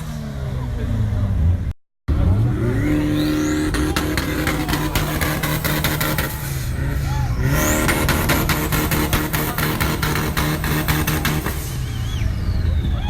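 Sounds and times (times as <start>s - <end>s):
car engine revving: 0.0s - 12.9s
exhaust crackling pops: 7.6s - 12.2s
short rising whistle: 11.4s - 13.0s.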